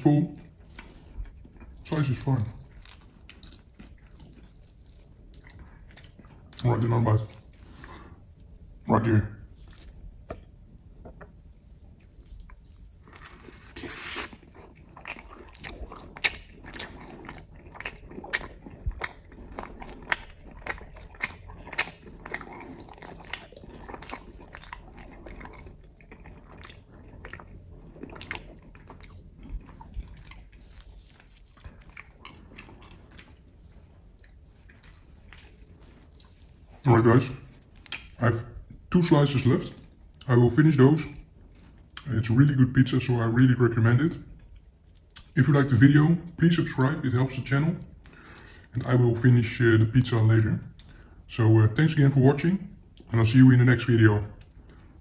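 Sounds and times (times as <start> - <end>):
person biting and chewing pizza: 0.4 - 8.3, 9.5 - 38.8
crisp crunches of crust: 12.0 - 38.2.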